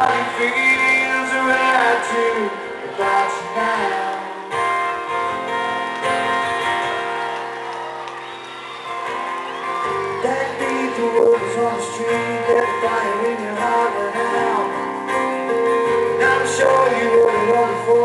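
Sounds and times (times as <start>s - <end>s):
person singing: 0.0s - 5.1s, 9.8s - 18.0s.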